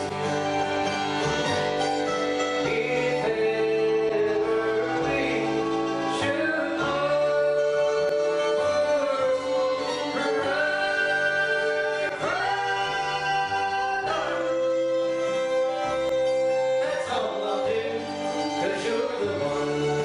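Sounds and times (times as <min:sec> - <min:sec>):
double bass: 0:00.0 - 0:20.0
fiddle: 0:00.0 - 0:20.0
guitar: 0:00.0 - 0:20.0
harmonica: 0:00.0 - 0:20.0
mandolin: 0:00.0 - 0:20.0
people singing: 0:02.6 - 0:14.8.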